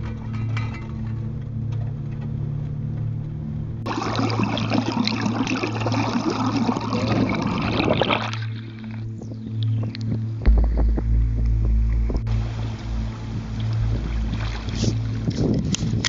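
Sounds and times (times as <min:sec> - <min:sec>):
music with low held notes: 0:00.0 - 0:16.0
water splashing and rushing: 0:03.8 - 0:16.0.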